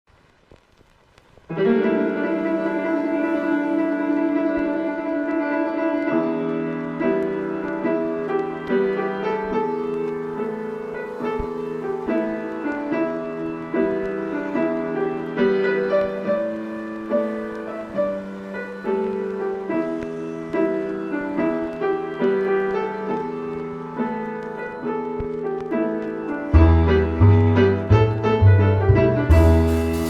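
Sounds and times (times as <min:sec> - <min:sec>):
gentle piano melody: 0:01.5 - 0:30.0.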